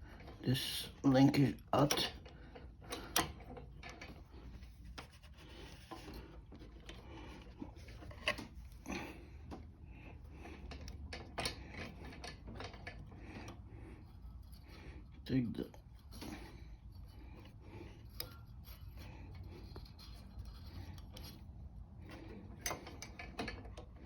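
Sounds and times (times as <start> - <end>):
faint metallic clicks and knocks: 22.0 - 24.0.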